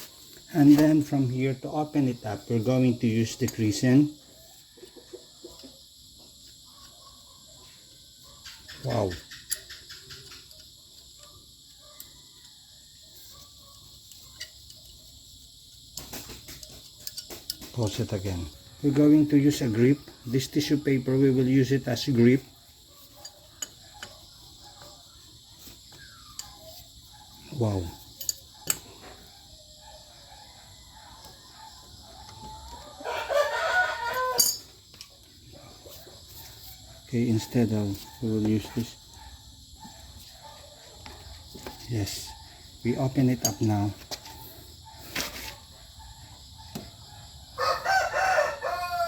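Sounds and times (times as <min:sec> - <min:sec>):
insects chirring: 0:00.0 - 0:49.0
rooster crowing: 0:30.3 - 0:34.8, 0:47.5 - 0:49.0.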